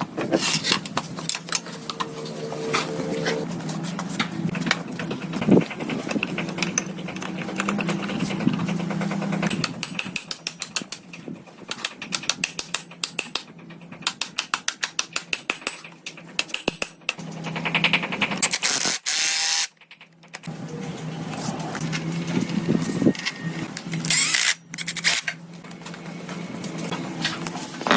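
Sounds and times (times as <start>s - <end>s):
sharp mechanical clicking: 4.6s - 20.5s, 23.1s - 25.3s.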